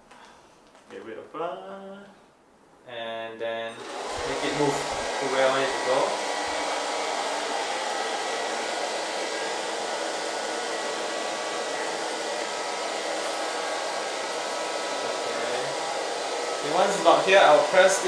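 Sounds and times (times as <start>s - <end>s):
robot vacuum running: 3.8s - 18.0s.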